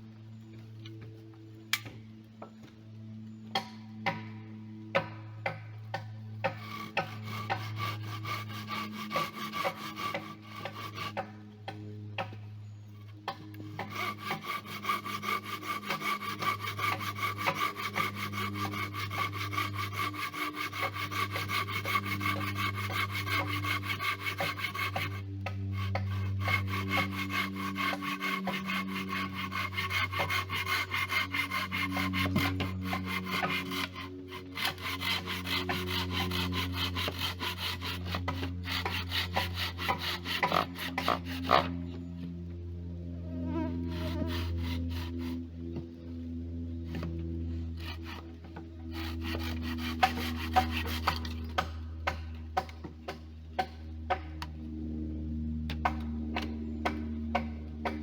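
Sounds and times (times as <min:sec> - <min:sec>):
wood being sawn: 0:05.9 - 0:11.4, 0:13.3 - 0:41.9, 0:43.5 - 0:45.5, 0:46.9 - 0:52.7.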